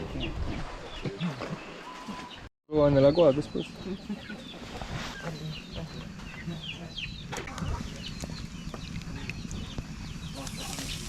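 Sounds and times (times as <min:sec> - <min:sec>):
chickens chirping and clucking: 0:03.0 - 0:11.0.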